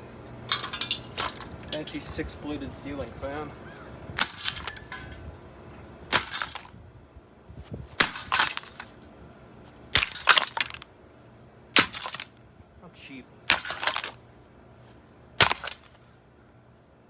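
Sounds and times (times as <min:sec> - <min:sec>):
ceiling fan being smashed: 0:00.5 - 0:02.0, 0:04.2 - 0:05.2, 0:06.1 - 0:06.8, 0:07.9 - 0:09.0, 0:09.9 - 0:10.8, 0:11.8 - 0:12.4, 0:13.5 - 0:14.2, 0:15.4 - 0:16.0.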